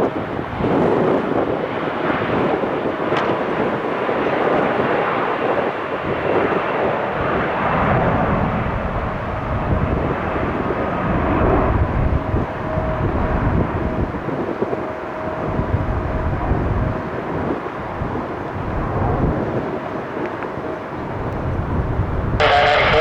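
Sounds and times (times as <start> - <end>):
jet engine roar: 0.0 - 23.0
jet engine whine: 0.0 - 23.0
deep engine rumble: 21.0 - 23.0.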